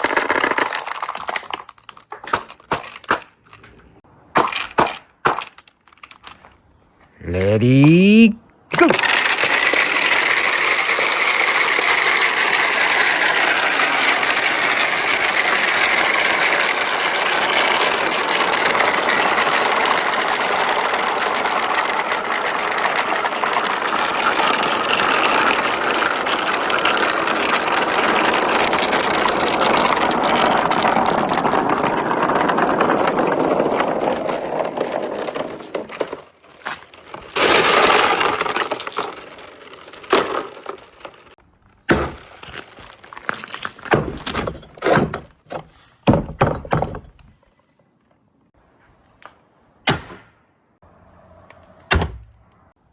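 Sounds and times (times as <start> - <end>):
marbles rolling down track: 0.0 - 3.2, 8.8 - 41.4.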